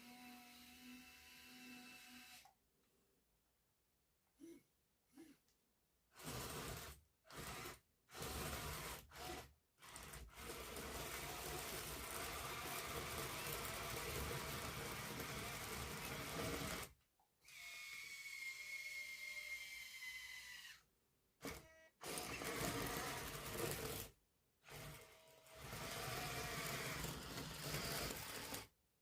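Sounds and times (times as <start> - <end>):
small electric motors whirring: 6.2 - 20.8, 24.7 - 28.7.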